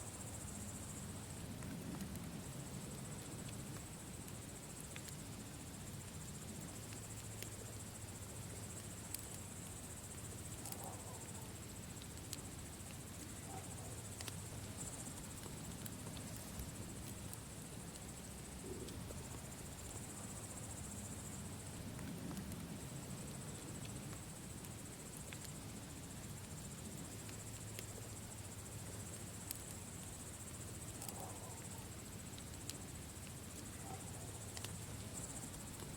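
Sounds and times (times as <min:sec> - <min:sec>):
insects chirring: 0:00.0 - 0:35.9
campfire crackling: 0:00.1 - 0:35.9
fire popping: 0:01.3 - 0:05.2, 0:14.0 - 0:20.1.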